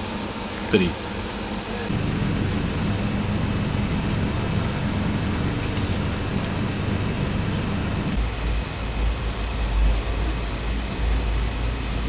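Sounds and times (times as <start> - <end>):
deep even rumble: 1.9 - 8.2
high hiss: 1.9 - 8.2
train running noise: 1.9 - 12.0.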